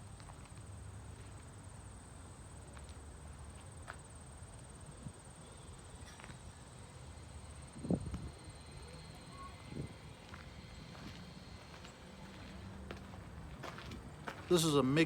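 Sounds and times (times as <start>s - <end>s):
wind on microphone: 7.8s - 8.4s
faint footsteps: 9.8s - 15.0s.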